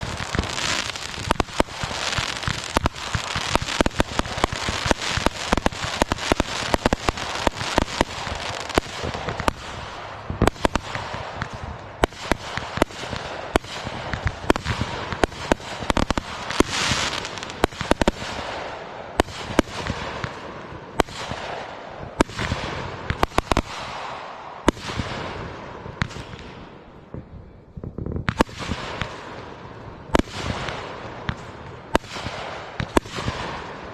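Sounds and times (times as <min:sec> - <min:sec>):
fireworks crackle: 0:00.0 - 0:20.4
fireworks bangs: 0:00.0 - 0:33.9.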